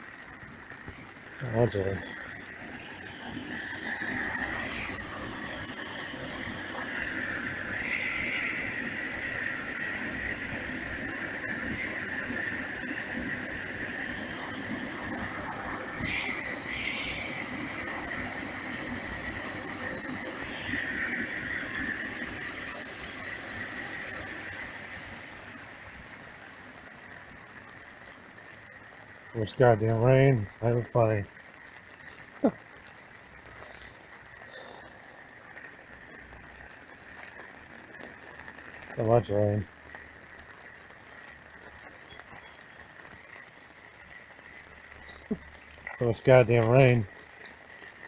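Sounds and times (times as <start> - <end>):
high wavering whine: 0.0 - 27.2
heavy rain: 0.0 - 48.0
runoff water rushing: 0.0 - 48.0.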